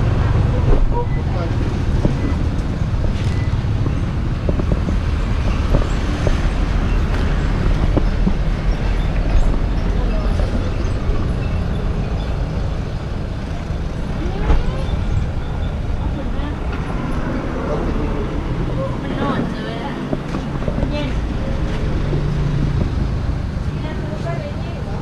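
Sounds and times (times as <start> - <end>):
wind rumble on microphone: 0.0 - 17.6, 18.2 - 23.8.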